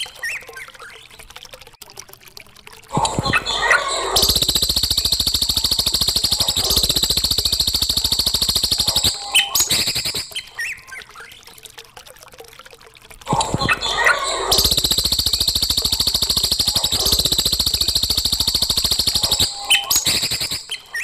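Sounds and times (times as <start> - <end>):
bird chirps and whistles: 3.4 - 10.8, 13.9 - 21.0
songbird trilling: 6.3 - 10.7, 14.1 - 21.0.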